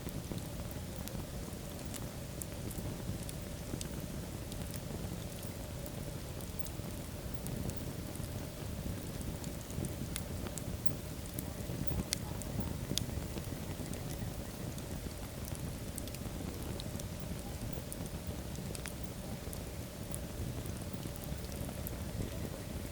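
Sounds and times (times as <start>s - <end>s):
fire crackling and popping: 0.0s - 22.9s
fire flames burning: 0.0s - 22.9s.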